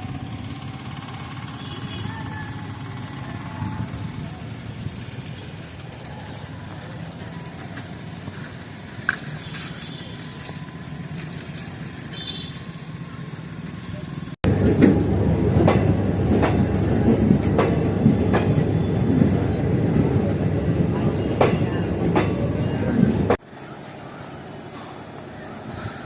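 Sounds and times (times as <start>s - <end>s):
train wheels clacking over rail joints: 14.5s - 23.4s.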